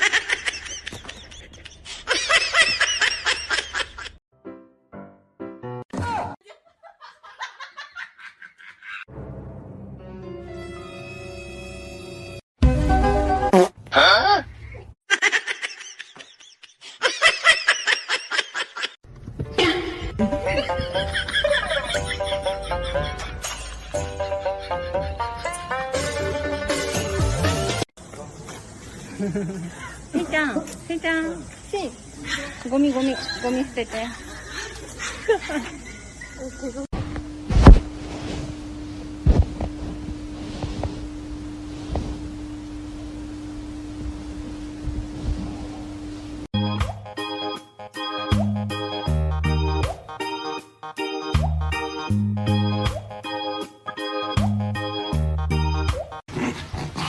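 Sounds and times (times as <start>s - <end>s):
short vocal cry: 13.9s - 14.5s
person laughing hard: 15.1s - 19.0s, 19.6s - 23.4s
steady hum: 37.0s - 46.5s.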